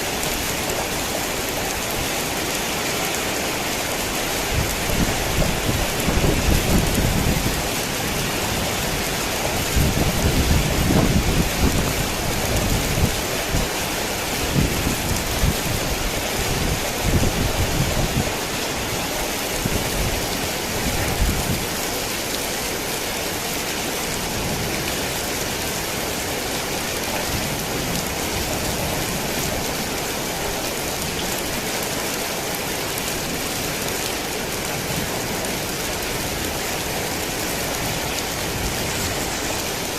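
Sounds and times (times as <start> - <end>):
heavy rain hissing: 0.0 - 39.9
thunder rumbling: 4.5 - 13.8.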